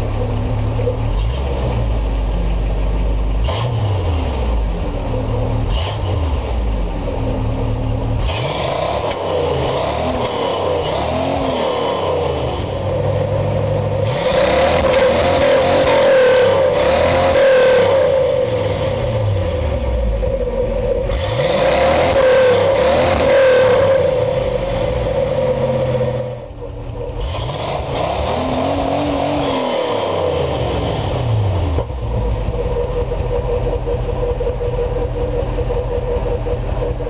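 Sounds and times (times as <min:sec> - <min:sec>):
car engine revving and idling: 0:00.0 - 0:37.0.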